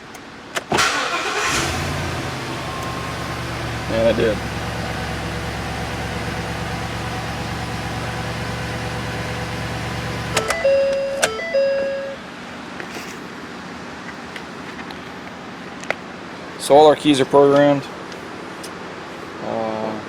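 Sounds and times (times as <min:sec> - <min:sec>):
engine shut-off click: 0:00.6 - 0:01.9
truck engine idling: 0:00.8 - 0:10.4
electronic chime: 0:10.4 - 0:12.2.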